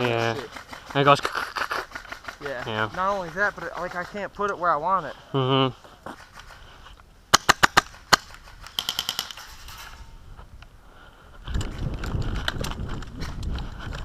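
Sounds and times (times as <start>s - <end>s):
airsoft gun shots: 7.3s - 10.0s.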